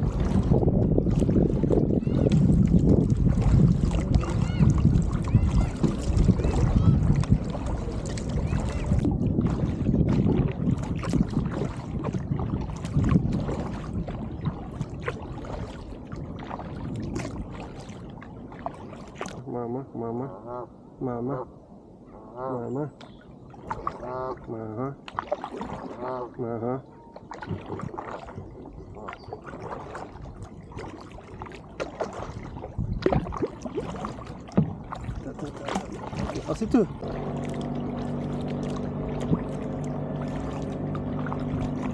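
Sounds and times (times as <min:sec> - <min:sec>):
paddle splashing into water: 0:00.0 - 0:19.4, 0:23.5 - 0:26.4, 0:27.2 - 0:41.9
low steady rumble: 0:36.2 - 0:41.9.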